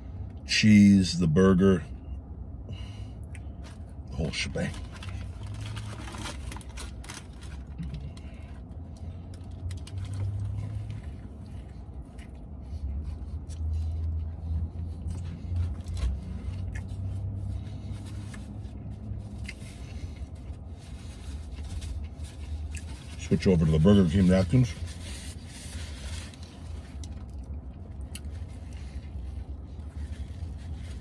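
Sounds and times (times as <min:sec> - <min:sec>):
man chewing: 0:08.1 - 0:23.2, 0:25.5 - 0:31.0.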